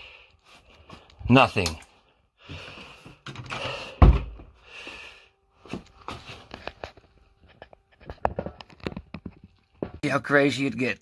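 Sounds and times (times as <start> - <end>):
soft breathing: 2.0 - 5.5.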